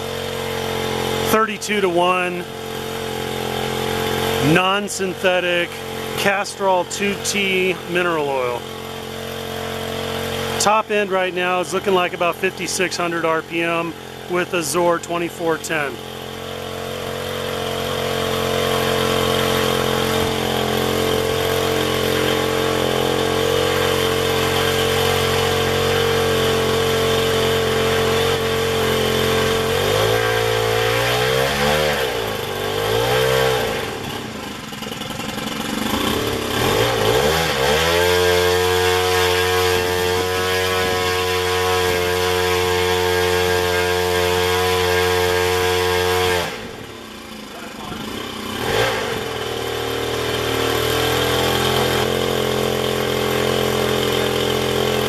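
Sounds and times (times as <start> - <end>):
two-stroke propeller engine: 0.0 - 55.0.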